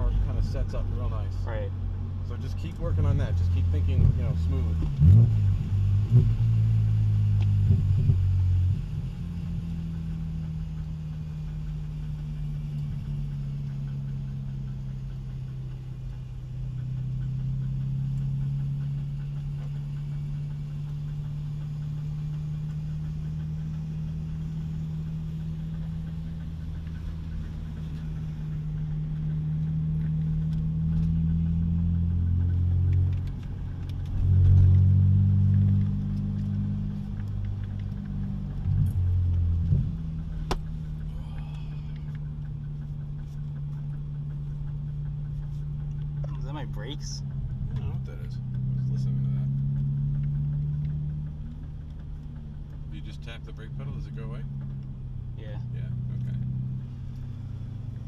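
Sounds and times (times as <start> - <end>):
car engine droning: 0.0 - 58.0.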